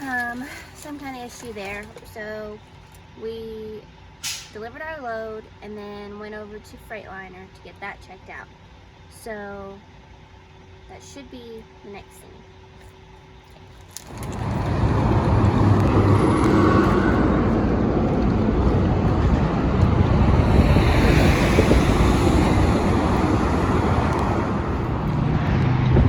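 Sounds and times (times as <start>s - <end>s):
vehicle rumble on road: 12.3s - 26.0s
wind on microphone: 14.1s - 26.0s.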